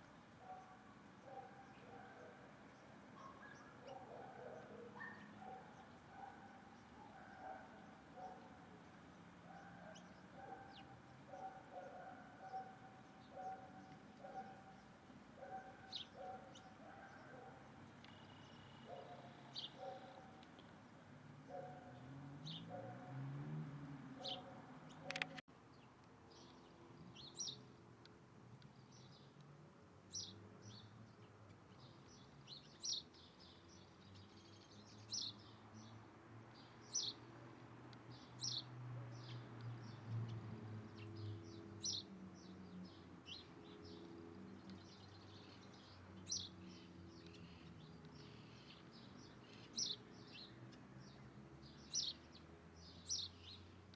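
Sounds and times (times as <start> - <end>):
small bird chirping: 24.3 - 25.4
sharp click: 25.1 - 25.4.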